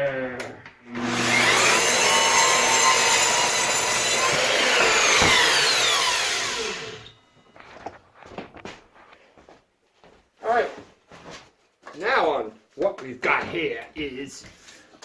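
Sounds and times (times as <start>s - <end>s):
power saw cutting wood: 0.9s - 7.1s.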